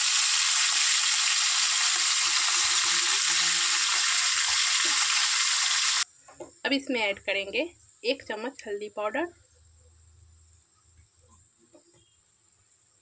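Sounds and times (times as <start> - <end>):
eggplants sizzling in oil: 0.0 - 6.1.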